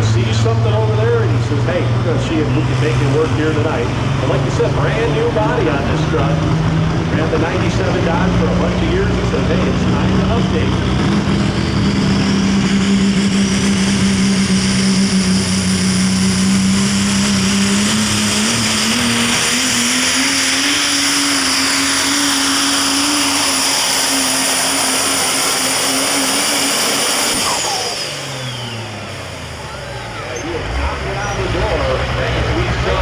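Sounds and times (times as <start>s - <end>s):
diesel truck engine at full throttle: 0.0s - 33.0s.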